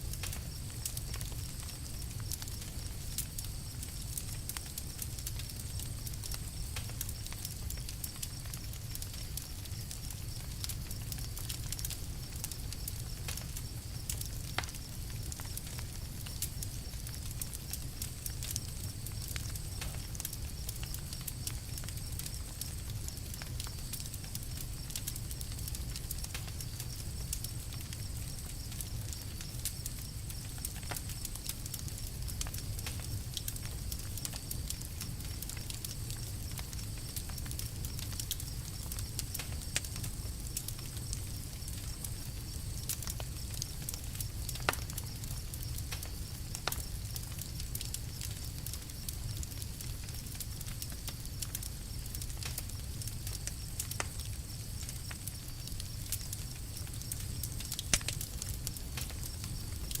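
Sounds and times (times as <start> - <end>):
campfire crackling and popping: 0.0 - 60.0.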